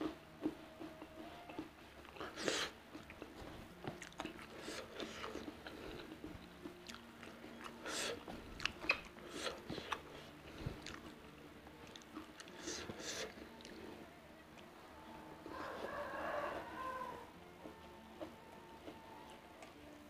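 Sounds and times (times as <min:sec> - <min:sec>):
person chewing food: 0:00.0 - 0:14.7.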